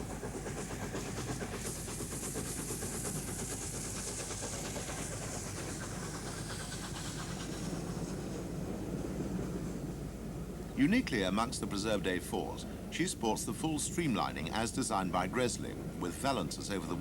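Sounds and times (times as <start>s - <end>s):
steam hissing: 0.0s - 9.0s
steam locomotive beats: 0.0s - 17.0s.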